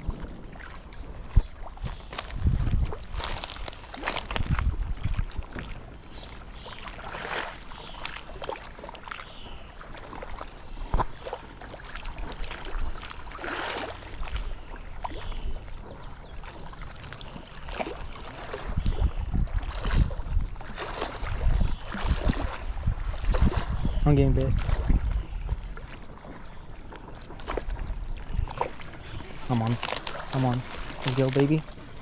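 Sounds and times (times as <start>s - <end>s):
wind buffeting microphone: 0.0s - 7.9s, 18.2s - 26.2s, 27.4s - 32.0s.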